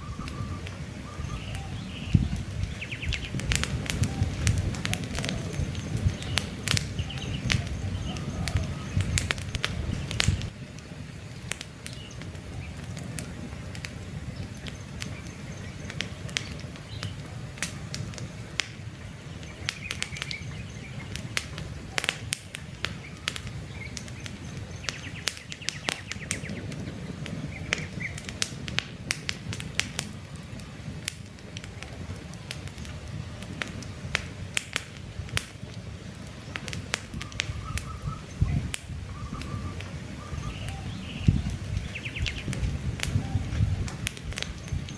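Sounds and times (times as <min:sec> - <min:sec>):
faint bird chirps: 0:00.0 - 0:03.4, 0:37.2 - 0:42.5
campfire crackling and popping: 0:00.0 - 0:44.9
rush of burning flames: 0:00.0 - 0:44.9.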